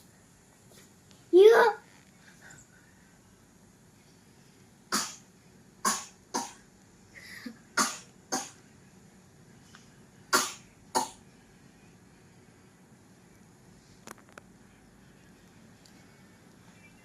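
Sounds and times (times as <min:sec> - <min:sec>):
child coughing: 0:05.8 - 0:06.6, 0:07.8 - 0:08.6.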